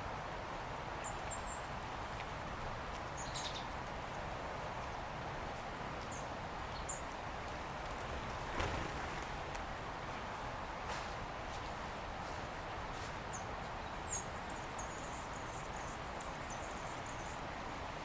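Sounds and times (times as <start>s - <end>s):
outdoor background hiss: 0.0s - 18.0s
small birds chirping: 1.0s - 2.2s, 2.8s - 3.8s, 6.0s - 7.2s, 13.3s - 17.5s.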